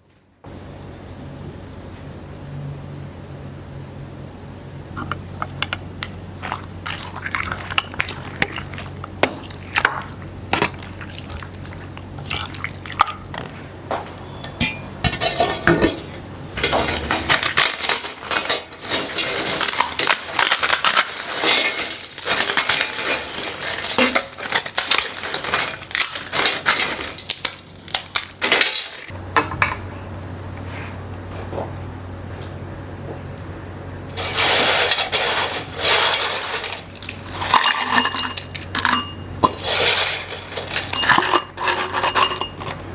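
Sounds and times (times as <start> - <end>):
dishes and cutlery clattering: 5.0 - 13.5, 14.4 - 29.8, 34.2 - 42.8.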